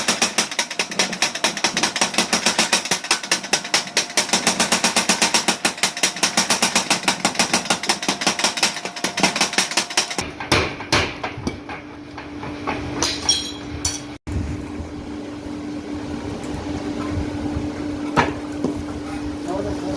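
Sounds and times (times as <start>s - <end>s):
power hammer striking steel: 0.0s - 14.1s
machine hum: 13.6s - 19.9s.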